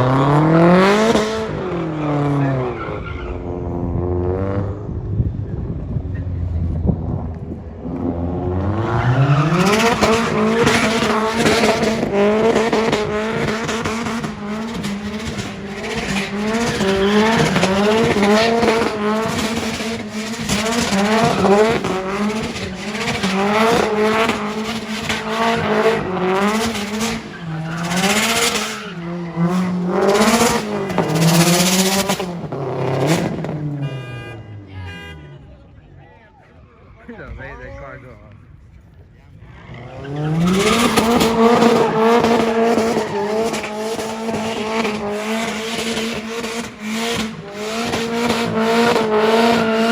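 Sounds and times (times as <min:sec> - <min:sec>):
car engine revving: 0:00.0 - 0:35.7, 0:37.0 - 0:49.9
tyres squealing in wheelspin: 0:01.1 - 0:03.9, 0:08.3 - 0:33.5, 0:39.4 - 0:49.9.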